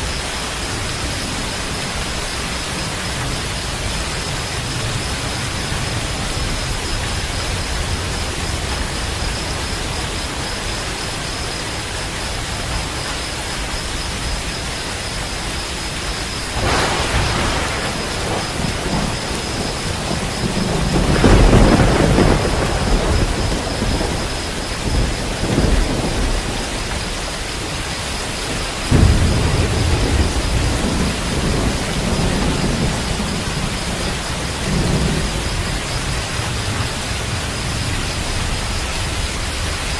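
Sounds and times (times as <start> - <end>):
steady rain: 0.0 - 39.9
thunder: 16.1 - 39.9.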